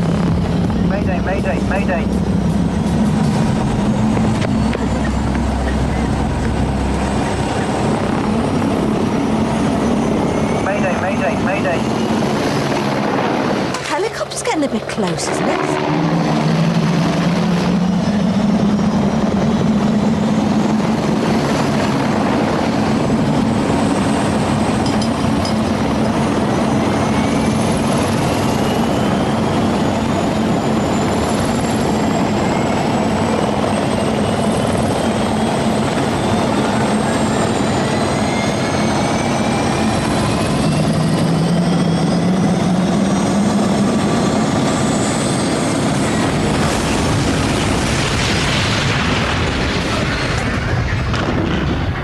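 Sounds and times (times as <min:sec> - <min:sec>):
high whining tones rising: 0:00.0 - 0:13.8, 0:14.8 - 0:22.0
helicopter rotor and engine: 0:00.0 - 0:52.0.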